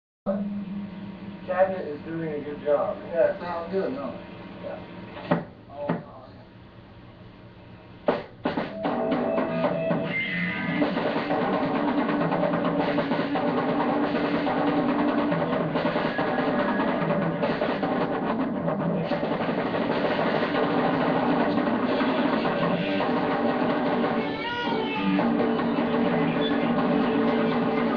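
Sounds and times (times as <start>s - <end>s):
rock band playing: 8.5s - 27.9s.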